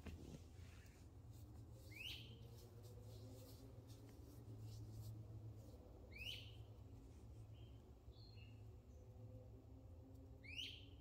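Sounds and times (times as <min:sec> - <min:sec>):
faint low hum: 0:00.0 - 0:11.0
bird whistled call: 0:10.4 - 0:10.9.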